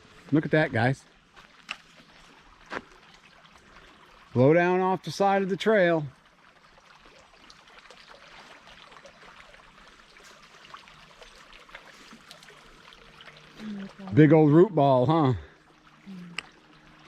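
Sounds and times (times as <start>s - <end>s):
creek flowing: 0.0s - 17.0s
small ticks: 16.3s - 16.6s.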